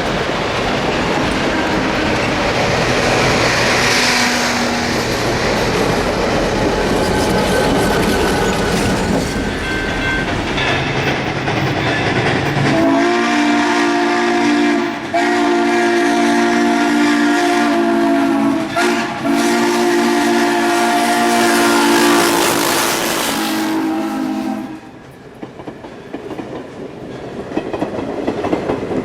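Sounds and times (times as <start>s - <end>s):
steam locomotive running: 0.0s - 29.0s
steam whistle blasts: 1.4s - 5.0s, 12.7s - 25.0s.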